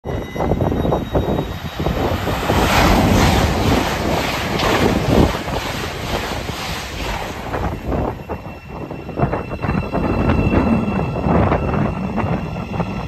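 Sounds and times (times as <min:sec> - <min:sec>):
train passing at speed: 0:00.1 - 0:13.0
wind buffeting microphone: 0:00.1 - 0:13.0
wheels clattering on rails: 0:01.2 - 0:08.4.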